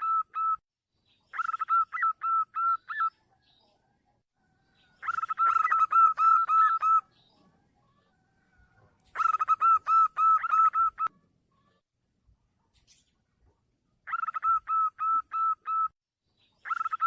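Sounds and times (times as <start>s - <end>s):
dove cooing: 5.0s - 7.0s, 9.1s - 11.1s, 14.1s - 15.9s.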